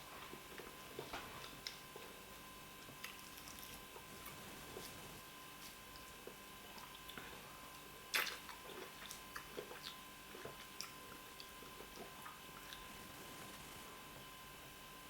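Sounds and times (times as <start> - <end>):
chewing and lip smacks: 3.0 - 4.9, 5.6 - 13.0.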